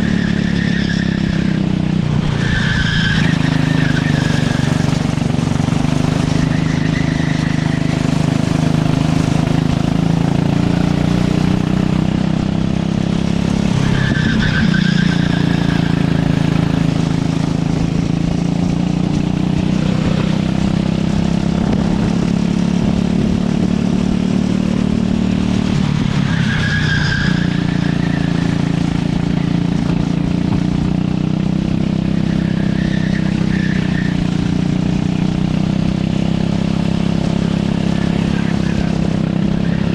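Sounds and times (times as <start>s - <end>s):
kart engine under load: 0.0s - 39.9s
tyres squealing: 2.3s - 11.0s.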